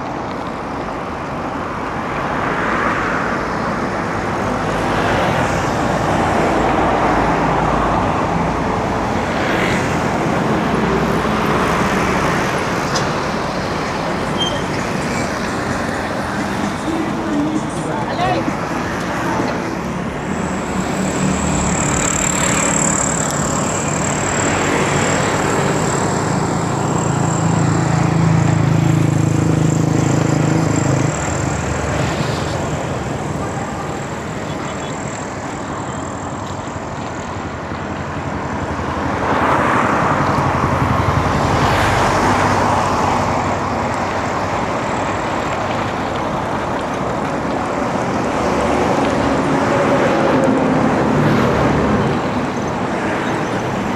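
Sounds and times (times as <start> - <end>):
vehicles passing: 0.0 - 53.9
heavy engine hum: 3.4 - 53.9.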